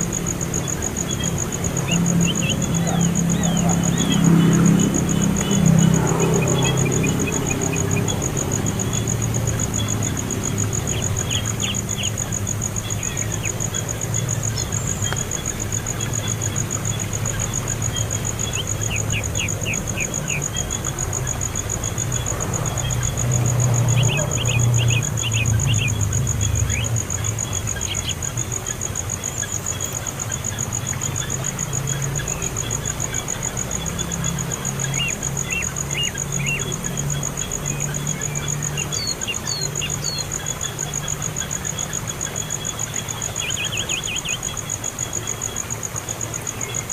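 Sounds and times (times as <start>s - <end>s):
small bird chirping: 37.5s - 41.0s.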